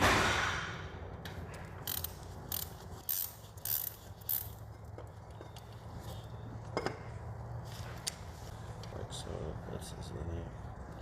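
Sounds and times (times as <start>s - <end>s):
ratchet wrench clicking: 1.8s - 4.8s.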